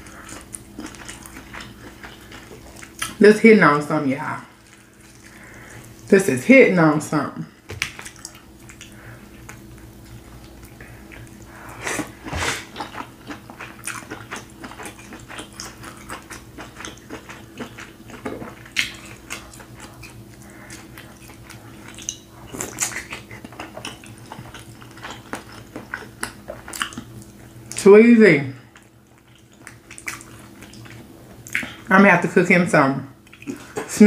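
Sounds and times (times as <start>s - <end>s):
person chewing and smacking: 0.0s - 3.2s, 7.7s - 27.8s, 28.7s - 31.9s, 33.2s - 33.9s
faint steady hum: 0.0s - 34.0s.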